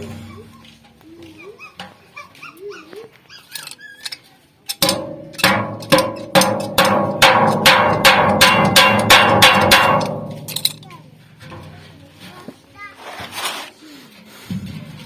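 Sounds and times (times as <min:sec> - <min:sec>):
hammer on sheet metal: 0:04.8 - 0:10.8.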